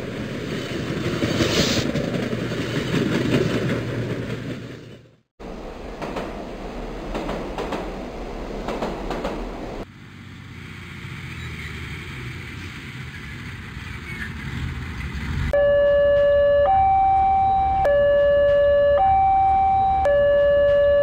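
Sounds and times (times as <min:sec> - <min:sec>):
two-tone level crossing alarm: 0:15.6 - 0:21.0.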